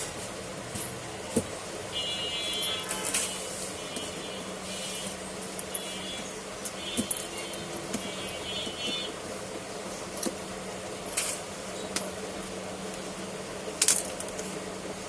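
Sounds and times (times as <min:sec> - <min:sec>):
steady background hum: 0:00.0 - 0:15.0
small clicks of parts and tools: 0:13.8 - 0:14.5.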